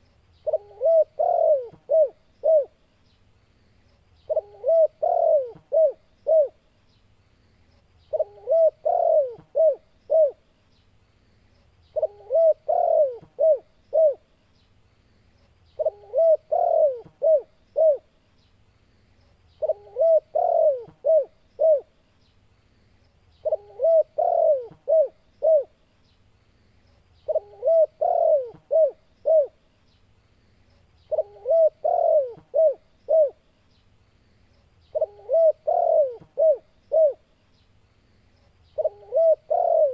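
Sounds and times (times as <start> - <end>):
dove cooing: 0.0 - 2.8, 4.3 - 6.6, 8.1 - 10.4, 11.9 - 14.3, 15.8 - 18.1, 19.6 - 21.9, 23.4 - 25.8, 27.2 - 29.6, 31.1 - 33.4, 34.9 - 37.3, 38.8 - 39.9.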